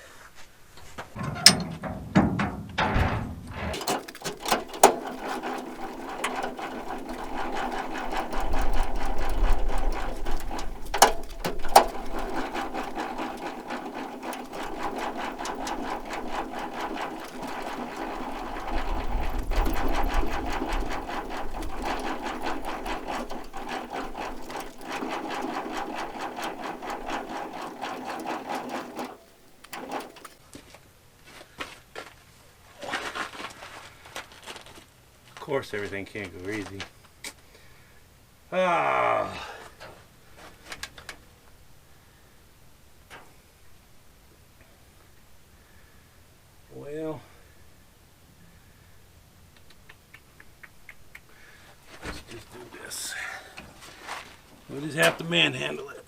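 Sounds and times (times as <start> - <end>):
crank gearbox clicking rattle: 3.7 - 30.4.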